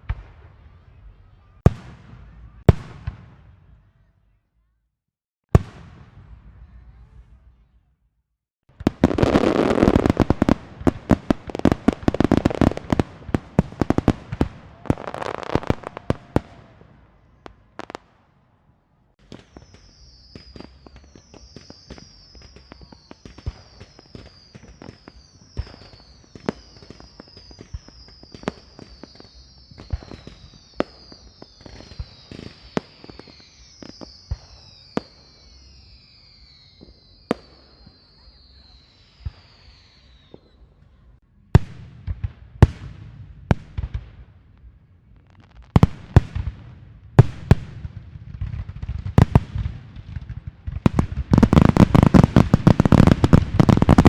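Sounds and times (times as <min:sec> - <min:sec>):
fireworks crackling bangs: 0:00.0 - 0:03.7, 0:05.5 - 0:07.5, 0:08.7 - 0:18.4, 0:19.1 - 0:38.6, 0:41.6 - 0:54.0
firework pops and crackles: 0:08.7 - 0:16.8, 0:19.2 - 0:38.5, 0:41.6 - 0:54.0
high falling whistles: 0:19.4 - 0:40.6.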